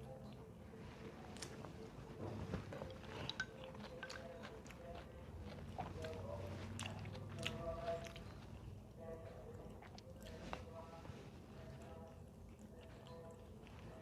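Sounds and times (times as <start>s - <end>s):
person chewing: 2.8s - 8.8s.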